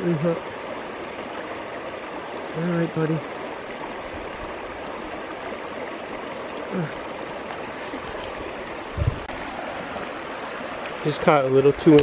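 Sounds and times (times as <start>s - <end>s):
brook rushing over rocks: 3.1s - 12.0s.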